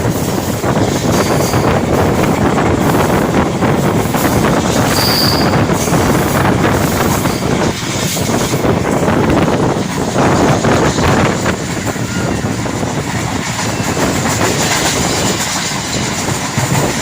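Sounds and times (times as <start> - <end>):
train wheels rumbling on rails: 0.0 - 17.0
wind buffeting microphone: 0.0 - 17.0
high squeal: 4.8 - 6.0, 11.7 - 12.6.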